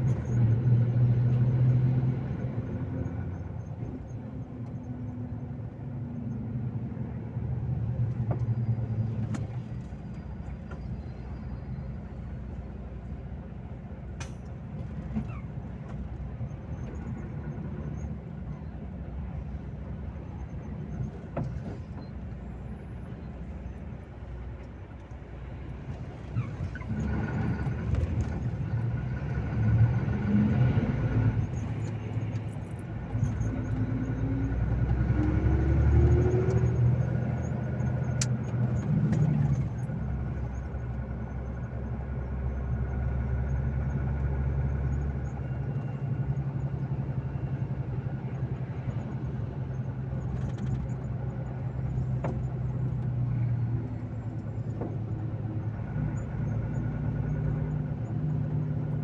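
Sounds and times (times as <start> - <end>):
road noise: 0.0 - 59.0
truck diesel engine running: 0.0 - 59.0.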